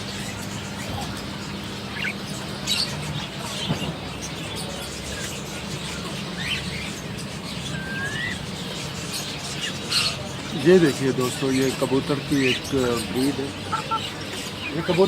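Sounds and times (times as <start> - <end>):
caged birds chirping: 0.0 - 15.0
market background noise: 0.0 - 15.0.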